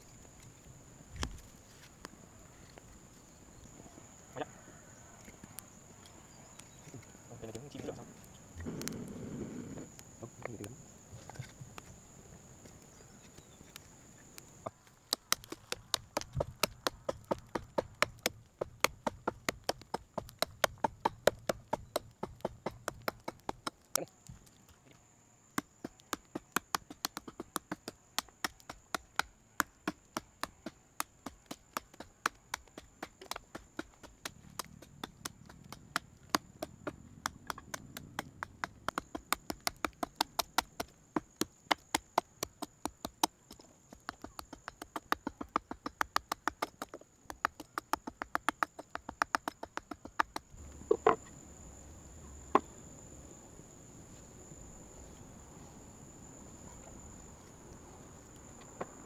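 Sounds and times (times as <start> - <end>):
rapid sharp knocks: 15.2 - 23.8, 25.8 - 51.2.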